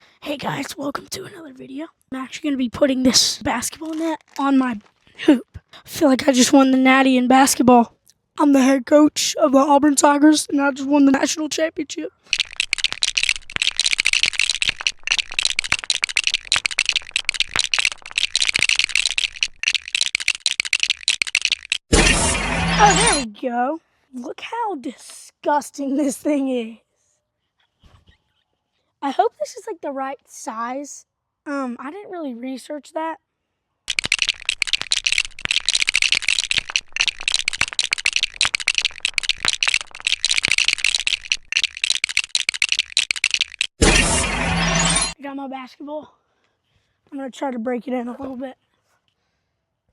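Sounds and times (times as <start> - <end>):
basketball hoop and net rattling: 12.2 - 23.2, 33.9 - 45.2.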